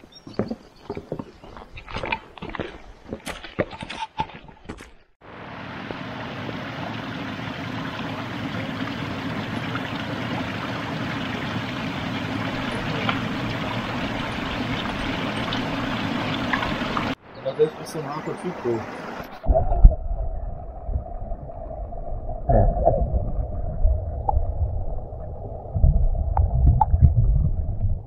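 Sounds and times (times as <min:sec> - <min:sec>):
running water: 0:05.2 - 0:22.4.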